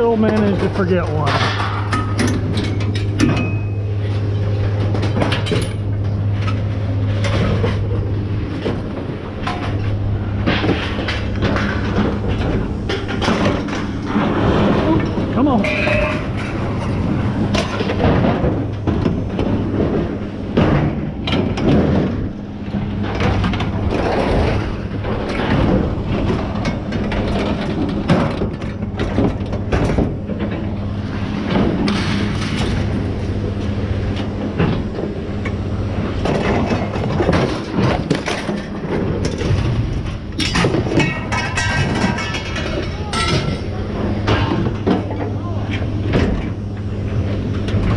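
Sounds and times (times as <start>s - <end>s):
low machine hum: 0.0s - 47.9s
scrap metal clanking: 4.8s - 18.9s, 36.2s - 45.2s.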